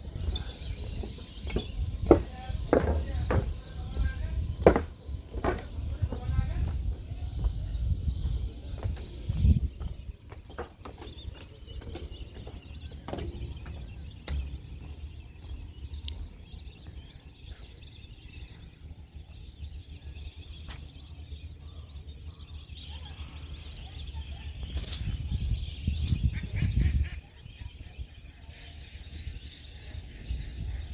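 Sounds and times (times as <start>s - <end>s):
flock of birds chattering: 0.0s - 30.9s.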